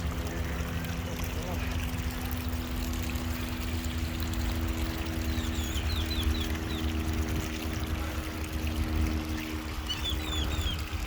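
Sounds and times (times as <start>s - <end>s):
faint steady hum: 0.0s - 11.0s
water trickling and pouring: 0.0s - 11.0s
bird chirps: 5.3s - 6.9s, 9.8s - 10.9s.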